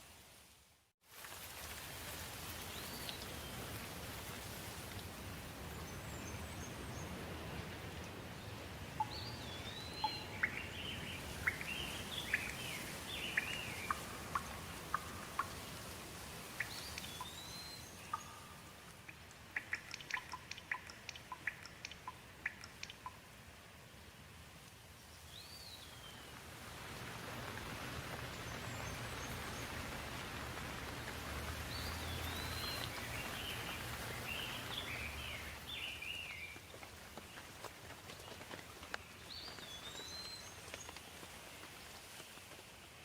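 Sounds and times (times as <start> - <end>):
steady rain: 0.0 - 43.0
sharp dripping ticks: 8.9 - 23.4
birds calling: 9.0 - 15.7.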